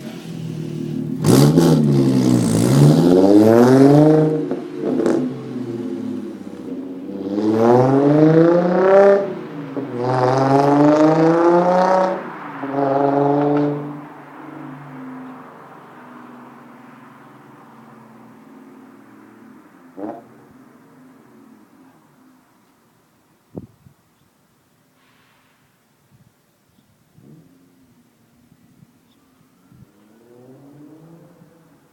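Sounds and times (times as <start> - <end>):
car engine revving: 0.0 - 18.2, 29.9 - 31.9.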